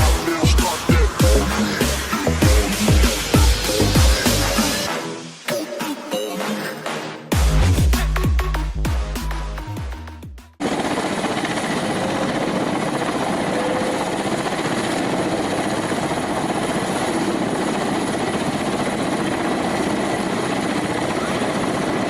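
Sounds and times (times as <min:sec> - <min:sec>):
helicopter rotor and engine: 0:00.0 - 0:04.9, 0:10.6 - 0:22.0.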